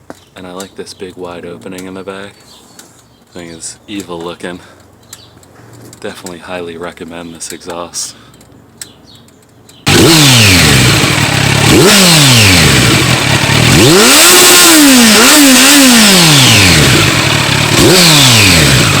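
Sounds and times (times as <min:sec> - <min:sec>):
motorcycle engine revving: 0:09.9 - 0:19.0.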